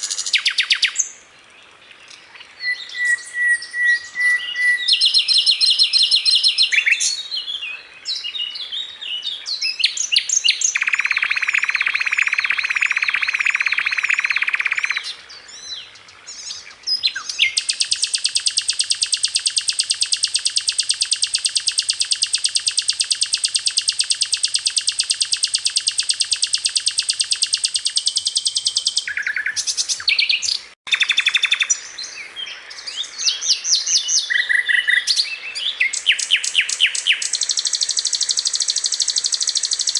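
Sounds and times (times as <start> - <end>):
songbird chirps and whistles: 0.0 - 1.2, 2.1 - 39.9
bird rapid even trill: 10.6 - 15.0, 17.4 - 30.3, 30.9 - 31.7, 35.9 - 39.9.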